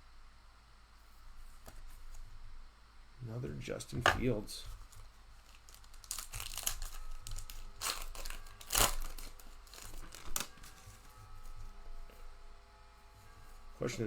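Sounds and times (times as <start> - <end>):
plastic wrapper crinkling and tearing: 4.7 - 11.7.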